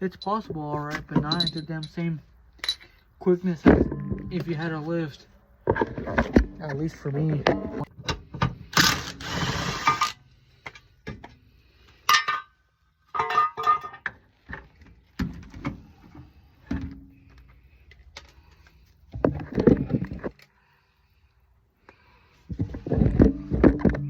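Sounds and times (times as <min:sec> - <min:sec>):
metal tools clanking: 0:00.0 - 0:03.0, 0:03.6 - 0:04.8, 0:06.0 - 0:07.9, 0:12.1 - 0:14.1
metal clatter: 0:12.1 - 0:14.1.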